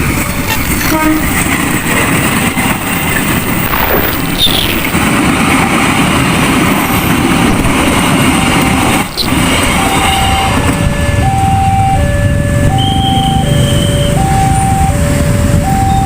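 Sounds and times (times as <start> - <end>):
trucks and motorcycles running: 0.0 - 16.0
two-tone crossing warning alarm: 6.8 - 16.0.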